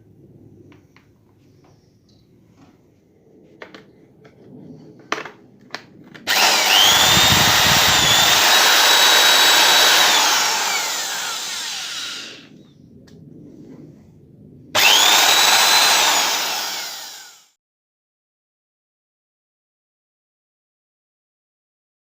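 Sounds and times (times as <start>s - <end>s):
electric drill motor whine: 6.3s - 12.5s, 14.8s - 17.6s.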